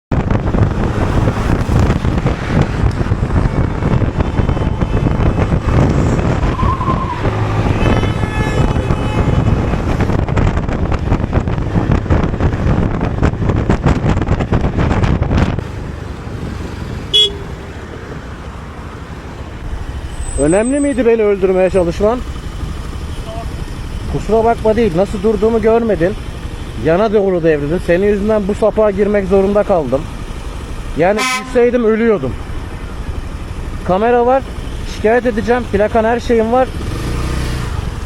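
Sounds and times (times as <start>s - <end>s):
road and wind noise: 0.0s - 38.0s
motorcycle riding at speed: 0.1s - 38.0s
vehicle horn: 4.2s - 5.7s, 7.4s - 10.1s, 17.0s - 17.7s, 31.0s - 31.8s
short horn beep: 17.1s - 17.5s, 31.2s - 31.6s.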